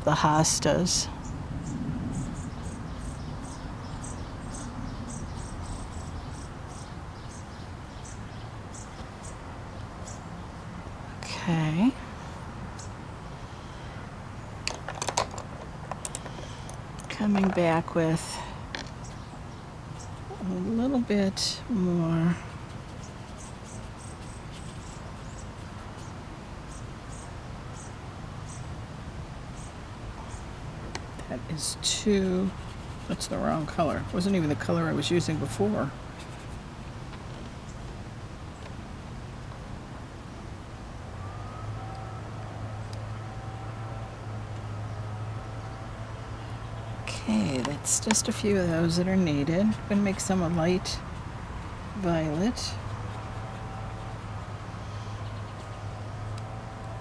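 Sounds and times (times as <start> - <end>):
low background rumble: 0.0 - 14.7
low steady rumble: 0.0 - 57.0
crickets chirping: 1.2 - 9.4.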